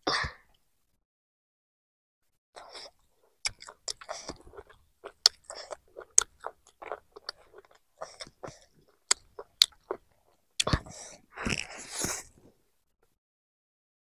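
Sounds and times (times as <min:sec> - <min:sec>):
person chewing crunchy food: 0:02.6 - 0:12.5.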